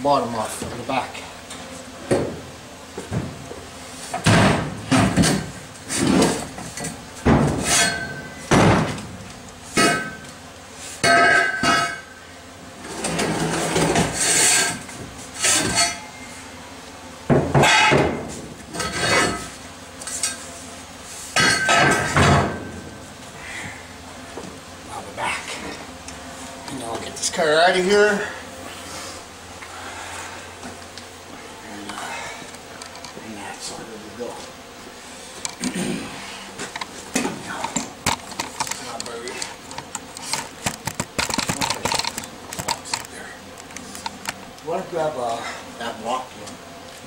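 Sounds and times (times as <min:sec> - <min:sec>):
metal bangs and clanks: 0:17.4 - 0:19.4.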